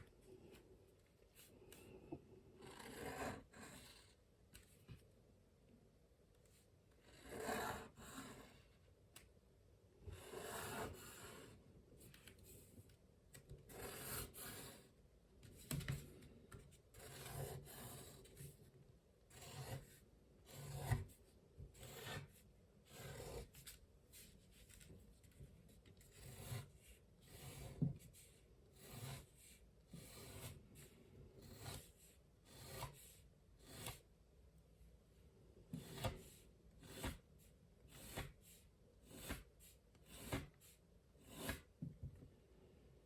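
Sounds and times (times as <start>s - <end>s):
pen scratching on paper: 2.6s - 4.2s, 7.0s - 8.7s, 10.1s - 11.6s, 13.6s - 14.9s, 16.8s - 18.6s, 19.3s - 24.8s, 25.7s - 34.0s, 35.7s - 37.3s, 37.9s - 41.7s.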